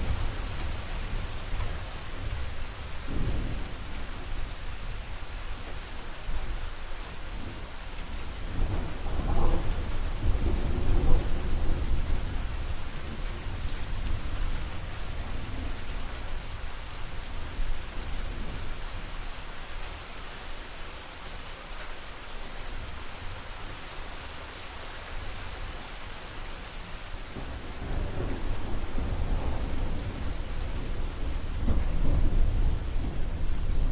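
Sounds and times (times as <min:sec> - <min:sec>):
rolling thunder: 0:00.0 - 0:06.3, 0:07.4 - 0:16.7, 0:27.3 - 0:33.9
steady rain: 0:00.0 - 0:33.9.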